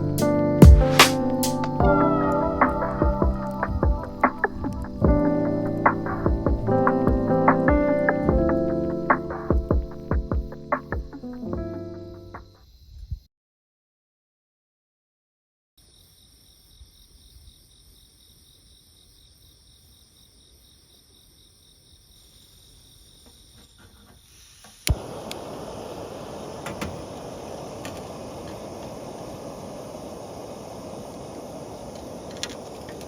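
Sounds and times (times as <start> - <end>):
steady rush of noise: 0.0 - 8.3, 24.9 - 33.0
high insect-like hum: 0.0 - 13.3, 15.8 - 33.0.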